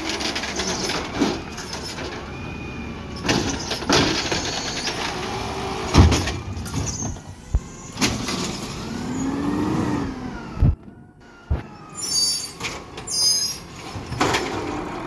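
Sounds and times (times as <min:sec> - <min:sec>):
garbage truck clanks and knocks: 0:00.0 - 0:08.7, 0:12.4 - 0:15.0.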